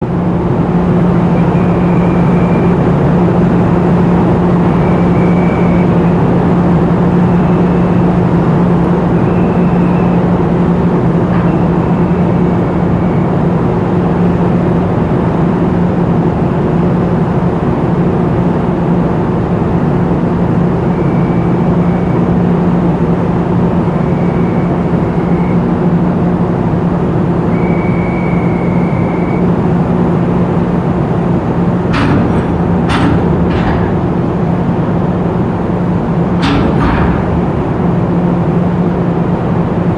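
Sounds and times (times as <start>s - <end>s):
heavy machinery engine drone: 0.0s - 39.9s
short high-pitched tones: 27.5s - 29.5s.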